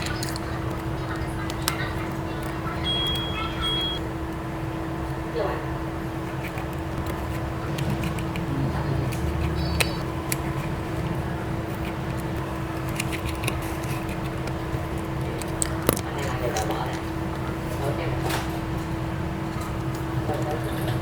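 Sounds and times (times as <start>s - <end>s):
steady machine hum: 0.0s - 21.0s
low rumble: 7.4s - 12.5s.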